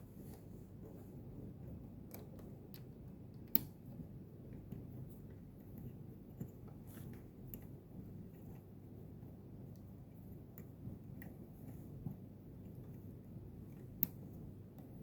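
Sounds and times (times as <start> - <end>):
low steady hum: 0.0 - 15.0
small plastic clicks and taps: 2.1 - 3.8.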